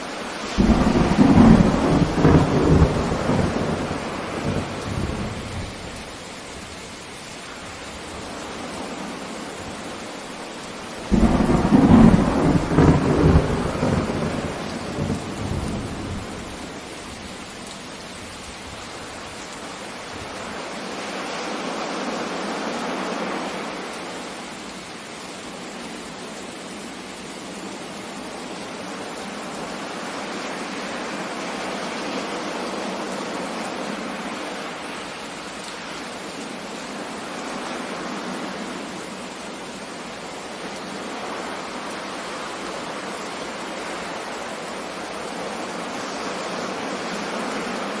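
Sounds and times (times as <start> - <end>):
steady rain: 0.0 - 48.0
thunderclap rumbling: 0.5 - 5.9, 11.1 - 16.7.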